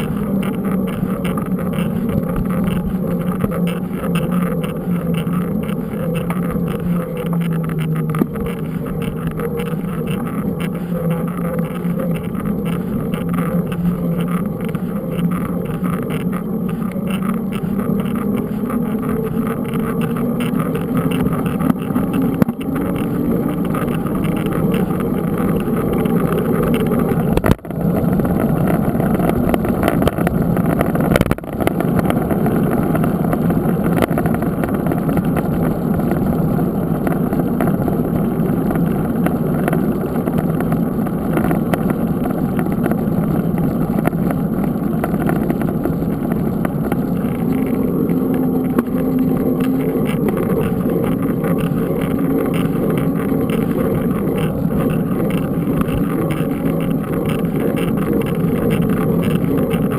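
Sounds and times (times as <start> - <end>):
low rumbling noise: 0.0 - 59.9.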